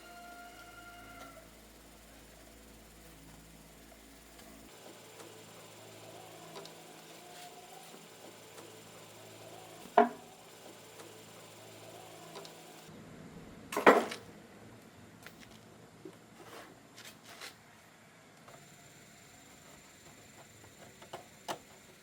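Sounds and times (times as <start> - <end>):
loud clunk of metal parts: 13.7 - 14.3.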